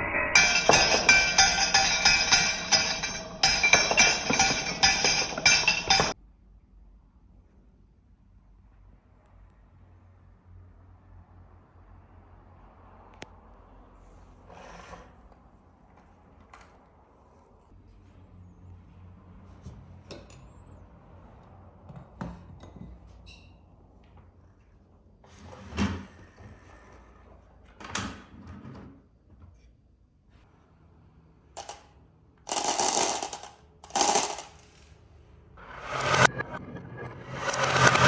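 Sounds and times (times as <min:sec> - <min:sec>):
marbles rolling and clattering: 0:00.4 - 0:06.2, 0:32.5 - 0:34.9, 0:37.2 - 0:38.0.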